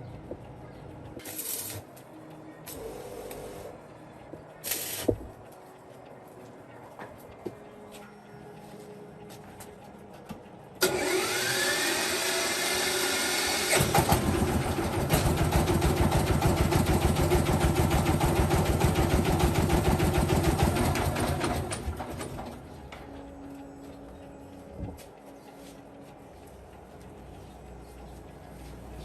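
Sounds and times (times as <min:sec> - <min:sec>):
starter motor whining: 0:10.8 - 0:17.8
engine running: 0:10.8 - 0:22.6.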